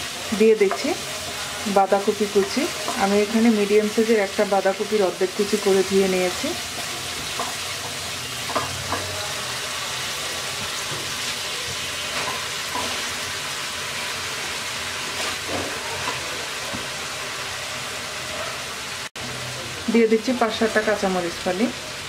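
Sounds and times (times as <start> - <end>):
spice paste sizzling in oil: 0.0 - 22.0.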